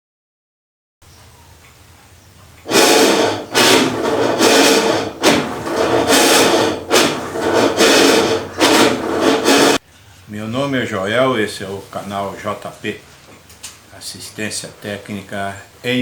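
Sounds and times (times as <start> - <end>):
washing machine grinding: 2.6 - 9.8.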